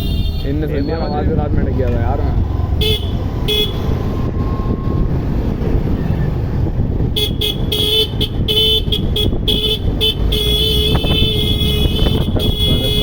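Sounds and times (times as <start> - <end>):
vehicle horn honking: 0.0 - 0.9, 2.8 - 3.9, 7.1 - 13.0
road traffic rumble: 0.0 - 13.0.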